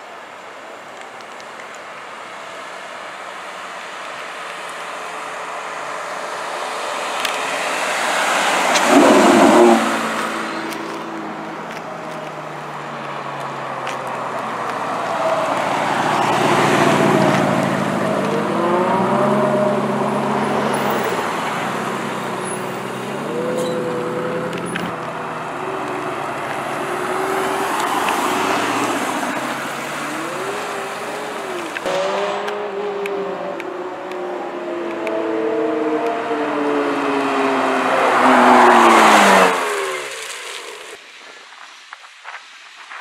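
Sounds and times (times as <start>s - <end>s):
car engine revving past: 7.5s - 10.8s, 14.8s - 40.8s.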